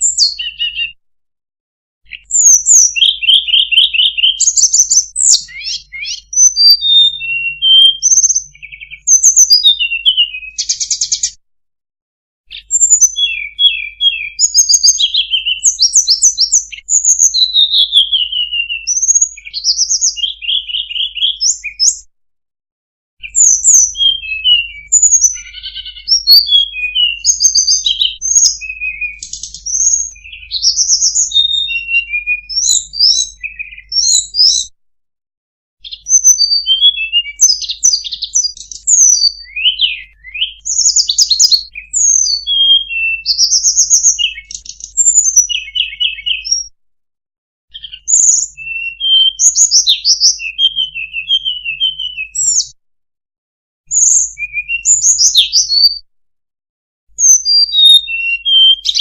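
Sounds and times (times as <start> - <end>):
bird song whistles and trills: 0.0 - 1.0, 2.0 - 11.4, 12.5 - 22.1, 23.2 - 34.8, 35.8 - 46.8, 47.7 - 52.8, 53.8 - 56.0, 57.1 - 59.0.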